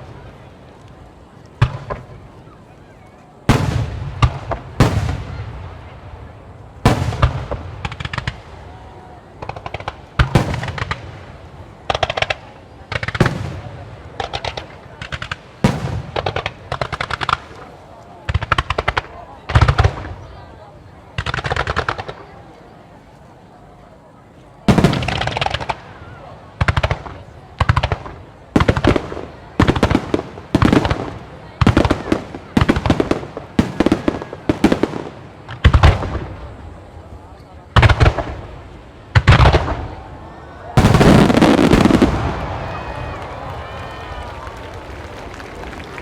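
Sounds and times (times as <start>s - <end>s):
firework booms: 3.5s - 8.8s, 9.4s - 20.3s, 24.7s - 37.1s, 37.7s - 44.0s
rapid crackling pops: 6.9s - 8.6s, 14.2s - 20.1s, 21.2s - 22.3s.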